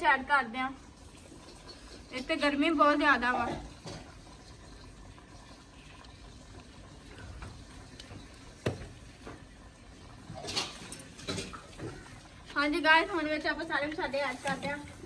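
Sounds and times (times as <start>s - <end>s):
food sizzling in a wok: 0.0s - 5.8s, 10.1s - 15.0s.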